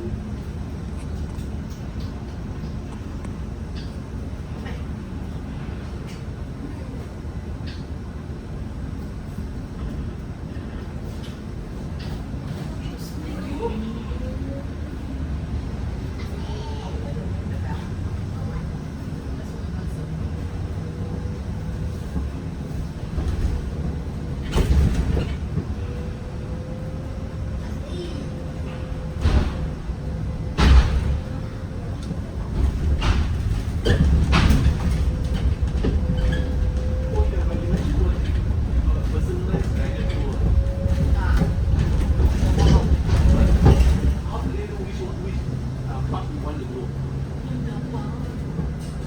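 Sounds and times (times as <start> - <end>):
bus cabin rumble: 0.0 - 49.0
faint rattles: 28.5 - 44.5.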